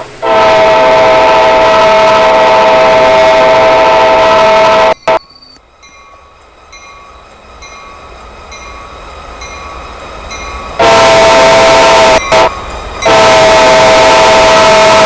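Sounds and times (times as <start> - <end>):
train rumble: 0.0 - 15.0
locomotive horn blowing: 0.2 - 5.2, 10.8 - 15.0.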